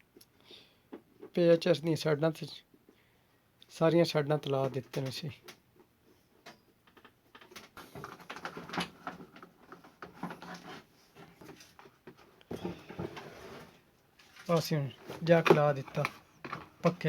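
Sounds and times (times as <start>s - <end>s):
plastic parts clicking and rattling: 6.4s - 11.9s, 14.2s - 17.0s.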